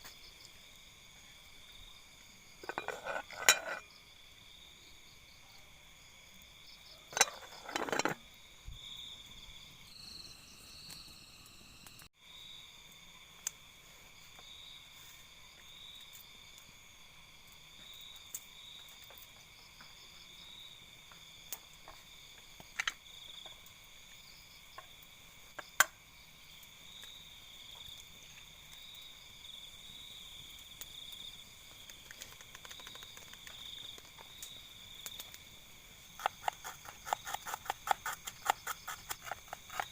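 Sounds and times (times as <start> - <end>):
night insects trilling: 0.0 - 39.9
cooking utensils clinking: 2.6 - 3.9, 7.1 - 8.2.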